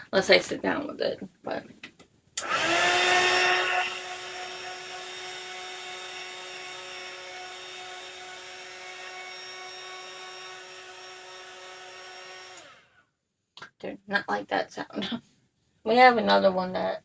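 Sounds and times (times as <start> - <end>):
hot-air dryer blowing with motor whine: 2.4 - 12.9.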